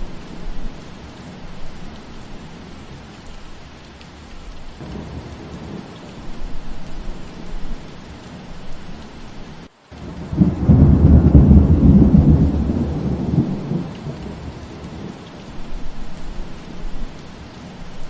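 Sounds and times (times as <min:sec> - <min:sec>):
steady rain: 0:00.0 - 0:18.0
thunder rumble: 0:04.8 - 0:18.0.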